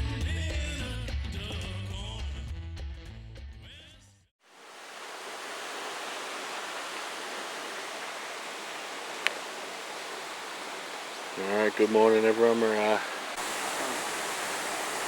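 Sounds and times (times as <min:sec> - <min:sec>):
waterfall rushing: 0:04.5 - 0:15.0.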